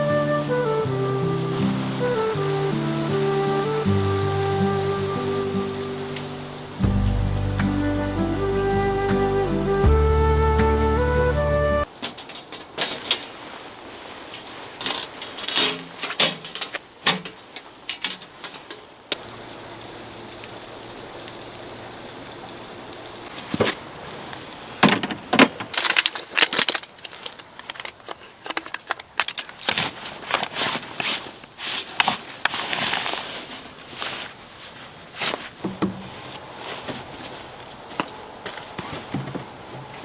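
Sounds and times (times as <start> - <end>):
objects being handled: 14.3 - 18.9.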